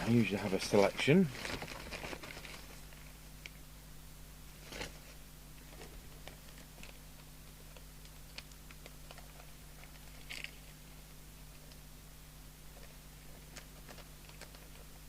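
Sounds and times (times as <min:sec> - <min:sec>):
small parts clicking and rustling: 0:00.0 - 0:03.0, 0:05.7 - 0:10.8, 0:12.7 - 0:14.9
low electrical hum: 0:00.0 - 0:15.0.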